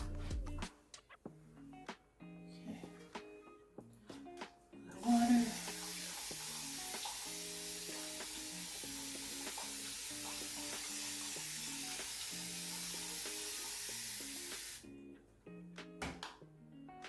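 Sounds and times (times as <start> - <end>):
background music: 0.0 - 17.0
spray bottle hissing: 5.5 - 14.8.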